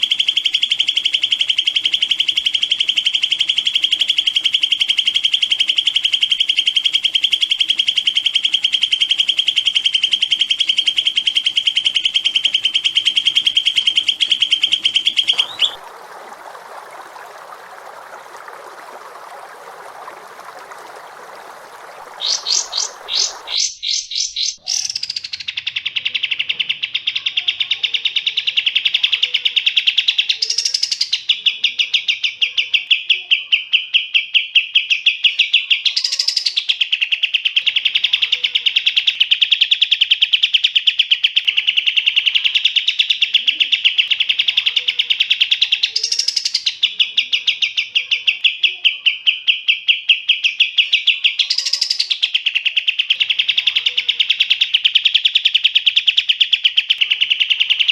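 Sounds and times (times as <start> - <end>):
songbird fast trill: 0.0 - 15.9, 19.0 - 57.9
bird rising high note: 15.2 - 23.5.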